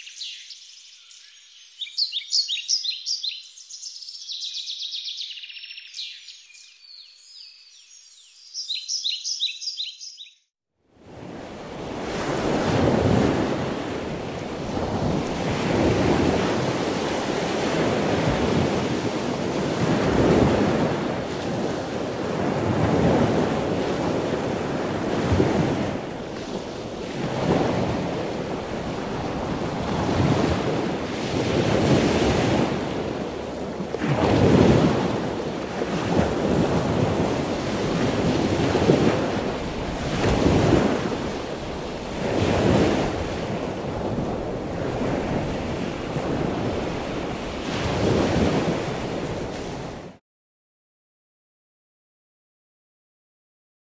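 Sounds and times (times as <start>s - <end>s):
birds chirping and singing: 0.0s - 10.4s
waves washing onto shore: 11.0s - 50.2s.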